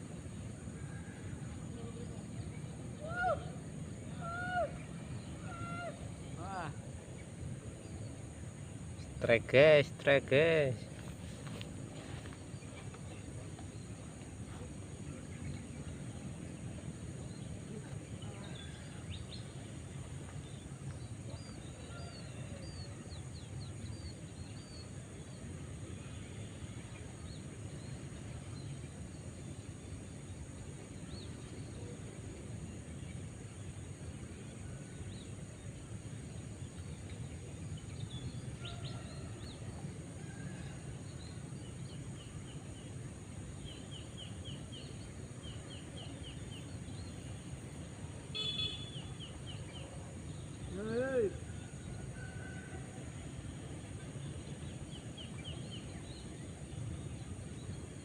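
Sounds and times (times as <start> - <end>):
birds chirping: 41.2 - 51.9.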